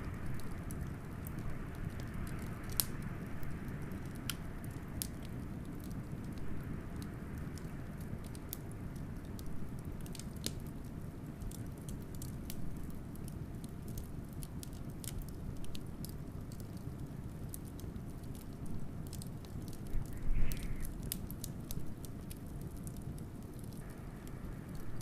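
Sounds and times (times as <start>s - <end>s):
wood fire crackling: 0.0s - 25.0s
blizzard wind rumble: 19.8s - 21.2s.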